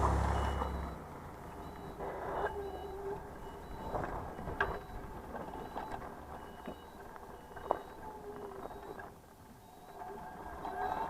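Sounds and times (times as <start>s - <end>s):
reversing beeper short beeps: 0.2s - 4.0s.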